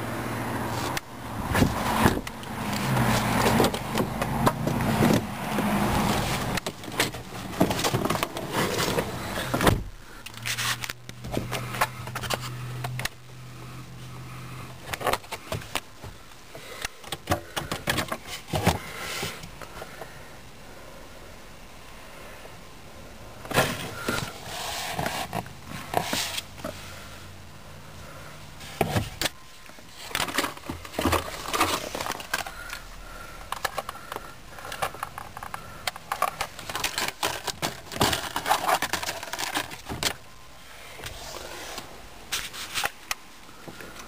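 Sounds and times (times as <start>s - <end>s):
clicking and rattling handling noise: 0.8s - 13.2s, 14.7s - 20.1s, 28.7s - 40.3s.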